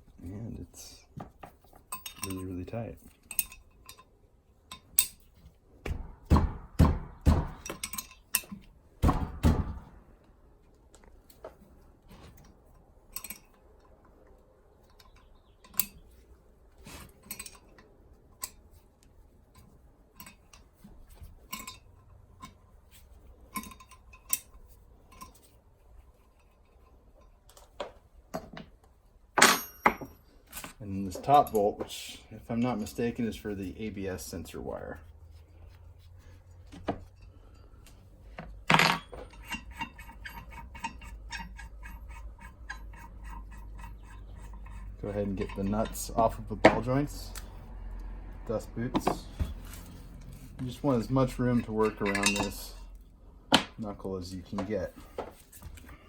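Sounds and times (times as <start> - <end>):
hand tools clinking on metal: 1.5 - 5.3, 7.6 - 8.7, 13.1 - 14.0, 17.1 - 17.8, 21.4 - 22.6, 23.4 - 25.6, 29.4 - 34.4, 38.7 - 47.6, 50.6 - 53.7.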